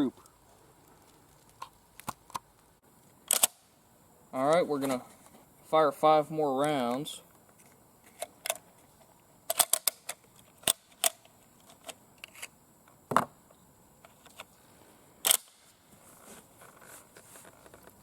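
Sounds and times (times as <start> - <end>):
rifle bolt metallic clicks: 3.3 - 3.6, 9.5 - 11.3, 15.2 - 15.6.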